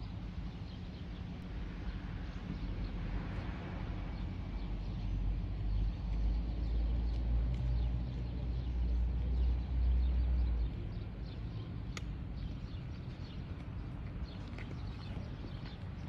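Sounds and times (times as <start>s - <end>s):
steady outdoor hum: 0.0s - 16.0s
small birds chirping: 4.2s - 16.0s.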